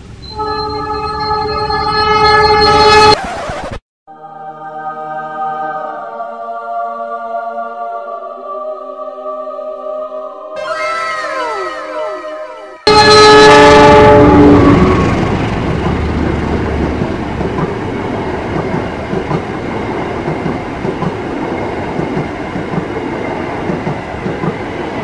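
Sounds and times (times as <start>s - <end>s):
locomotive horn: 0.3s - 3.2s, 10.6s - 15.6s
train wheels clacking over rail joints: 15.7s - 21.2s, 21.8s - 23.0s, 23.6s - 24.7s.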